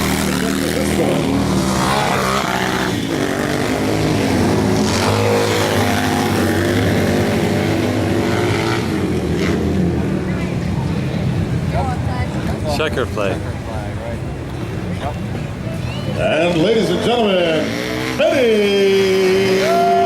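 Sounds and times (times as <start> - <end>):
motorcycles revving: 0.0 - 20.0.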